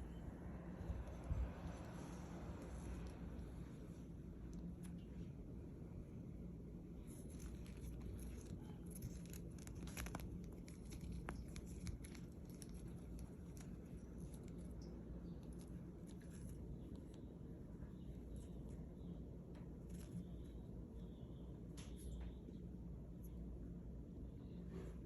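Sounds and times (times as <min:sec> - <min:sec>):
low steady hum: 0:00.0 - 0:25.0
bird rustling and scratching: 0:00.5 - 0:05.3, 0:07.0 - 0:20.7.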